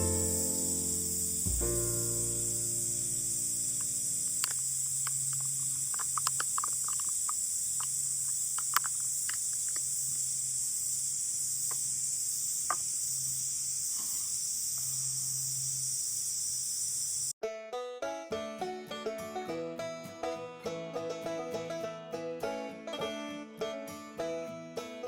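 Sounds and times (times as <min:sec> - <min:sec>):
insects chorus: 0:00.0 - 0:17.4.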